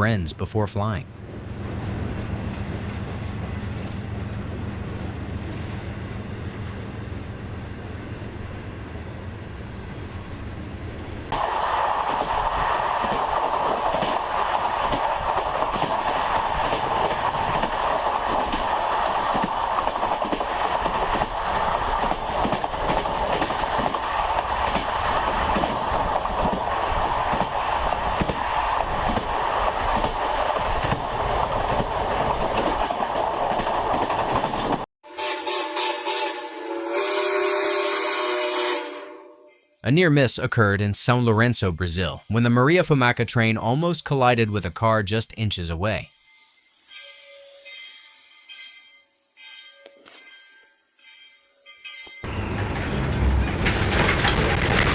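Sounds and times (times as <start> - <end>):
rail hum: 0.0 - 54.9
train wheels clattering on rails: 1.2 - 6.7, 11.3 - 34.9, 51.9 - 54.9.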